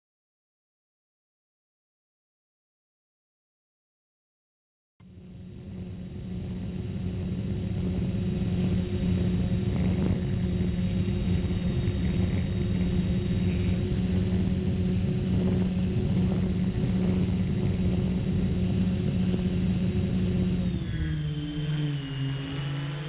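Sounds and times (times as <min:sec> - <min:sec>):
drone motors whining: 0:05.0 - 0:23.0.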